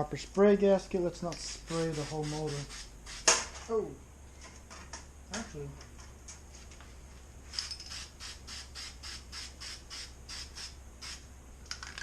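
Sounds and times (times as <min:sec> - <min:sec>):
aerosol spray hissing bursts: 0:01.4 - 0:03.3, 0:07.9 - 0:11.3.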